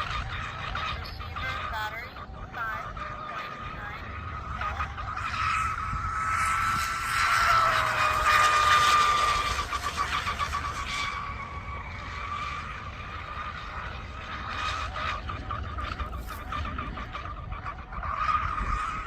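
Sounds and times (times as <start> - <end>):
model boat motor whining: 0.0 - 19.0.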